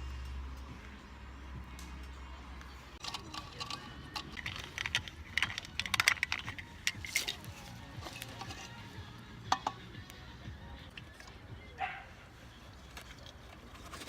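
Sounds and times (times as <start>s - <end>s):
small hard objects clicking: 3.0s - 8.8s.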